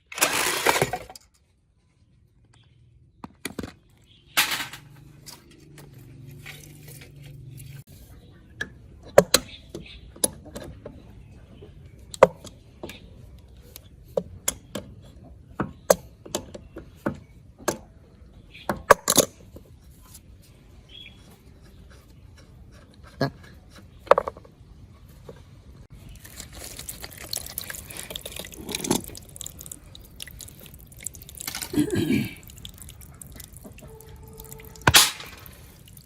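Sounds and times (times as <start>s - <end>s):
hand tools clinking and knocking: 4.4s - 7.7s.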